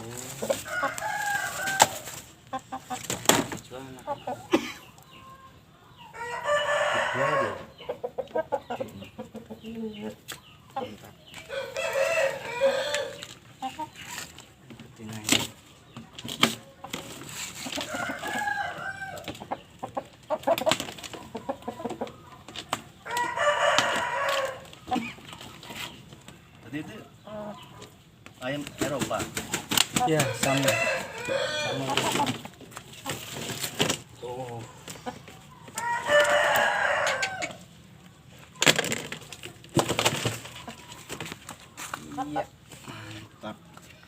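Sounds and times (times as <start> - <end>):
chickens clucking: 0.0 - 44.0
rooster crowing: 0.6 - 2.2, 6.1 - 7.7, 11.5 - 13.2, 17.9 - 19.3, 23.0 - 24.8, 30.1 - 32.1, 35.8 - 37.6
rooster-like call: 11.5 - 13.2.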